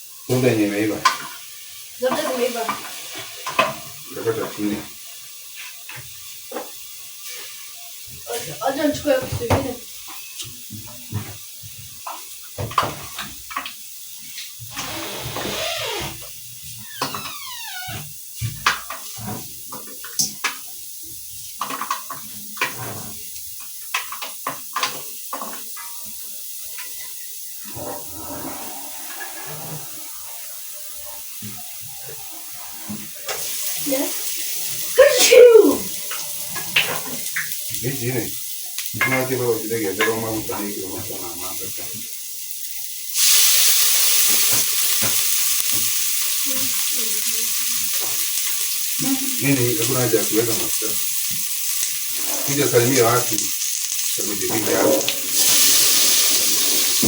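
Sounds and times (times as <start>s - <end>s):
food sizzling in hot oil: 0.0s - 57.0s
utensils and dishes clinking: 39.0s - 40.7s.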